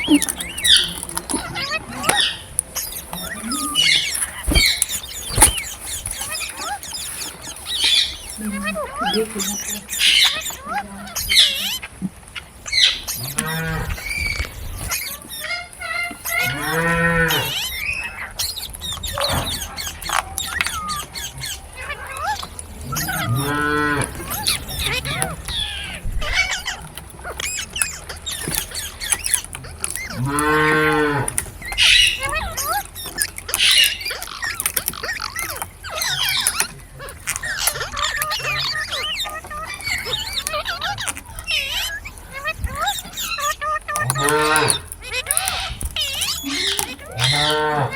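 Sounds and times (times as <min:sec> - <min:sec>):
parrots chirping and whistling: 0:00.0 - 0:47.9
cow mooing: 0:16.4 - 0:17.5, 0:23.3 - 0:24.2, 0:30.2 - 0:31.3, 0:44.0 - 0:44.9, 0:47.2 - 0:47.9.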